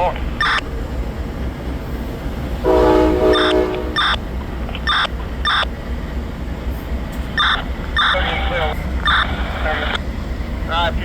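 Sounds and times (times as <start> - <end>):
low engine rumble: 0.0 - 11.0
locomotive horn: 2.6 - 4.2
locomotive bell ringing: 2.6 - 4.3.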